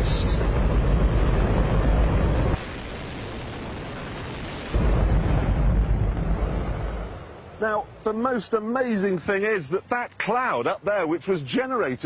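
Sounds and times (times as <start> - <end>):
rocket engine roaring: 0.0 - 8.0.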